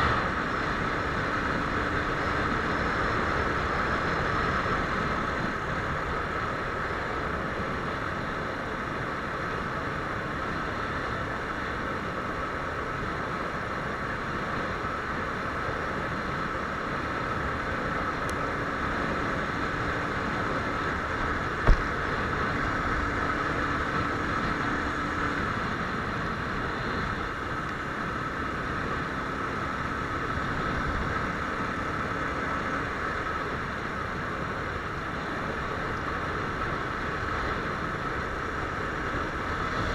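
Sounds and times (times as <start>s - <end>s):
motorcycle engine running: 17.4s - 34.4s
sharp knock: 21.6s - 21.9s.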